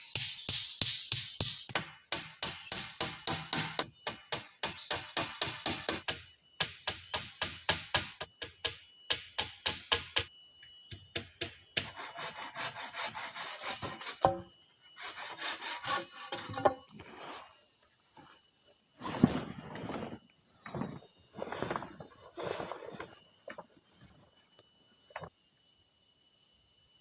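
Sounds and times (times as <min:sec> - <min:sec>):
hand saw cutting wood: 0:11.8 - 0:14.4, 0:15.0 - 0:17.4.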